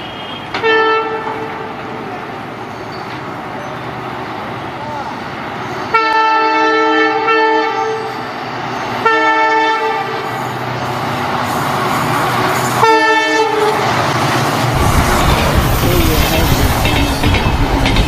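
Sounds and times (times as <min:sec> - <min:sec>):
train horn blasts: 0:00.0 - 0:02.0, 0:05.9 - 0:08.2, 0:09.0 - 0:10.4, 0:12.8 - 0:13.9
moving train running noise: 0:00.0 - 0:18.0.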